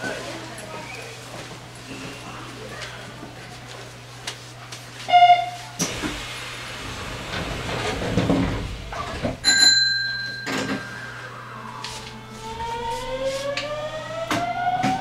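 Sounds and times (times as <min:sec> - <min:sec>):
rumbling door and train noise: 0:05.1 - 0:15.0.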